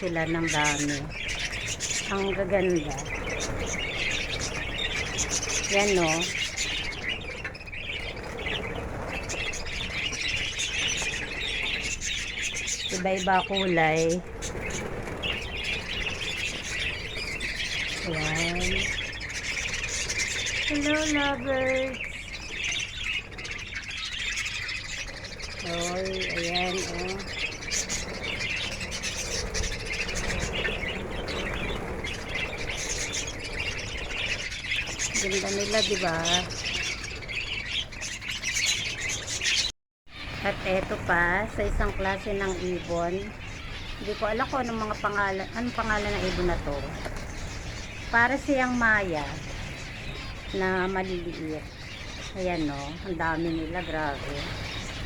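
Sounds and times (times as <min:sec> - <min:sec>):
lovebirds chirping: 0:00.0 - 0:55.0.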